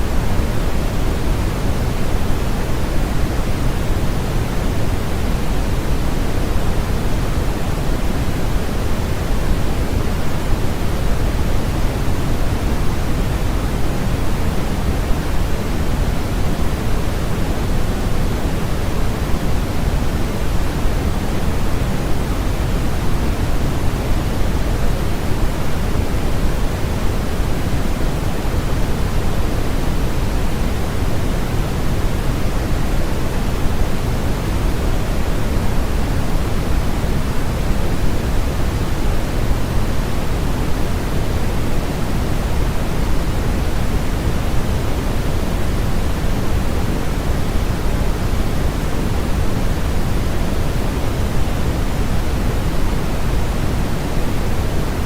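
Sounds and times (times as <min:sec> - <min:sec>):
steady white noise hiss: 0:00.0 - 0:55.0.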